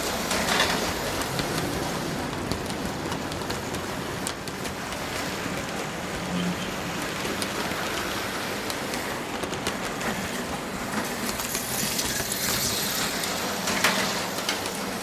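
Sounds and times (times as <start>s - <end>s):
slot cars whirring on track: 0.0s - 15.0s.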